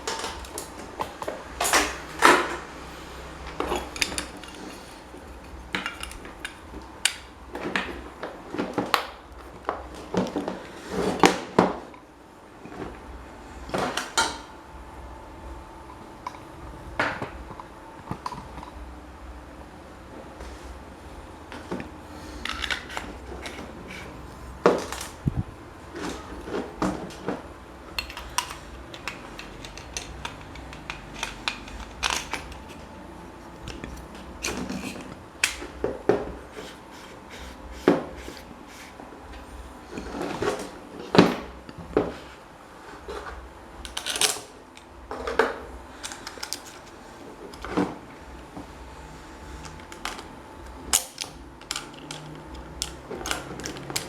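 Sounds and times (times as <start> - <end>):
metal parts and tools clinking: 3.5 - 7.2, 27.9 - 32.9, 46.0 - 47.7.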